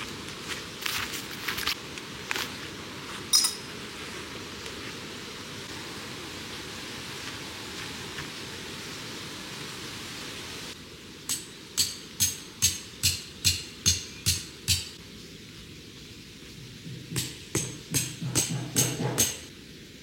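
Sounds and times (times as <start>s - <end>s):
background hiss: 0.0s - 20.0s
short high clink: 3.3s - 3.7s.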